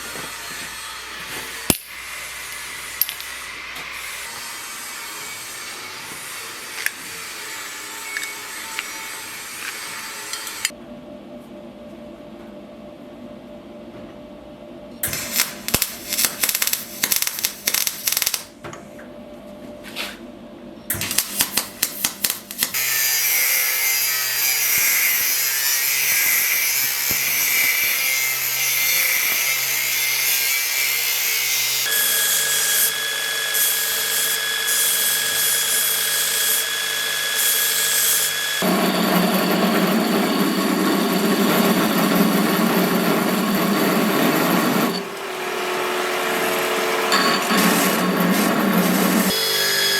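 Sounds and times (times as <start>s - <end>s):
power tool running: 31.8s - 49.9s.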